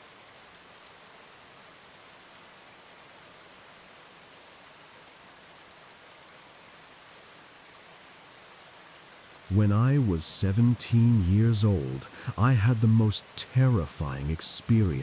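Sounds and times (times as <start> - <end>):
faint steady rainfall: 0.0 - 15.0
raindrop ticks: 0.4 - 1.5, 4.3 - 7.7, 8.5 - 10.9.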